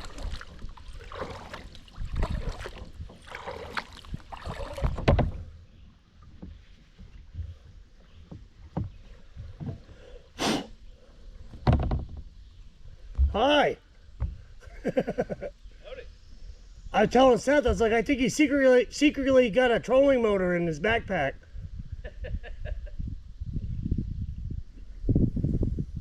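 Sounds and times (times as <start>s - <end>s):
short loud splashes or knocks: 0.0s - 5.5s
paddle strokes splashing water: 0.0s - 11.7s.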